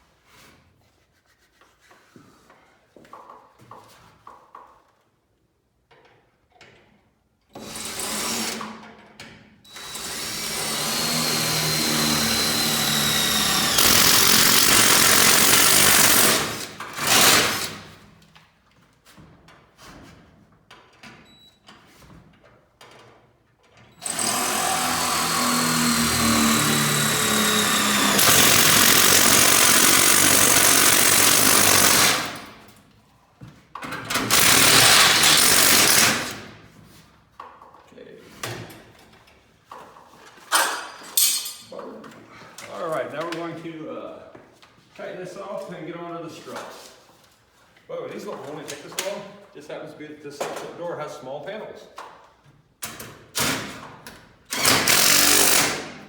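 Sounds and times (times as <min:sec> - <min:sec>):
power drill boring into steel: 0:09.7 - 0:17.8, 0:24.0 - 0:32.5, 0:34.2 - 0:36.3, 0:54.5 - 0:55.9.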